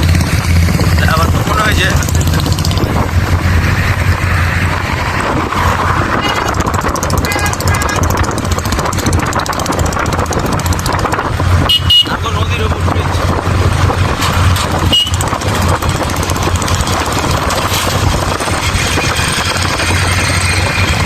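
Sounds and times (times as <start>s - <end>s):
traffic engine and road rumble: 0.0s - 21.0s
car horn toots: 6.1s - 8.3s, 11.6s - 12.2s, 14.8s - 15.4s.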